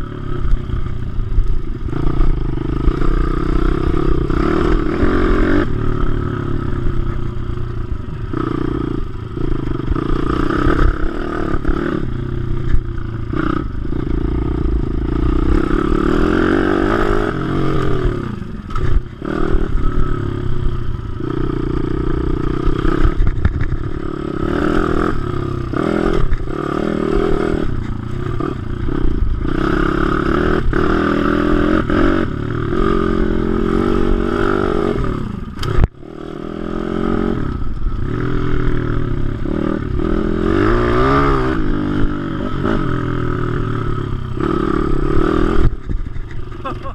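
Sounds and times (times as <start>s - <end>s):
motorbike engine revving: 0.0s - 46.9s.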